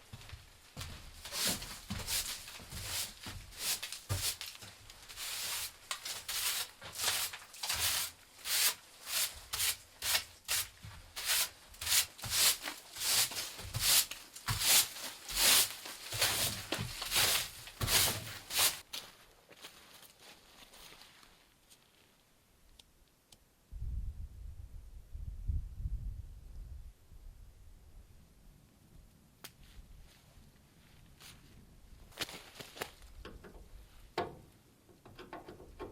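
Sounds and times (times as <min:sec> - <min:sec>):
hand sanding strokes: 0:01.3 - 0:18.8.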